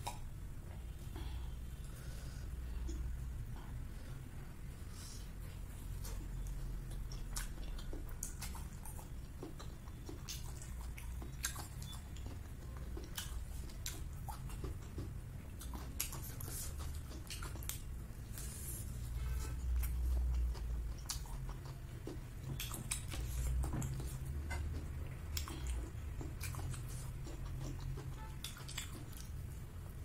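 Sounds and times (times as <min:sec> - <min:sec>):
low steady hum: 0:00.0 - 0:30.0
crunchy chewing and biting: 0:06.0 - 0:30.0.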